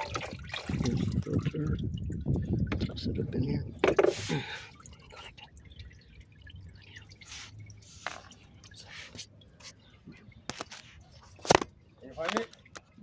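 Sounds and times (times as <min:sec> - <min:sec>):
oil dripping into pan: 0:00.0 - 0:03.3, 0:04.3 - 0:09.6.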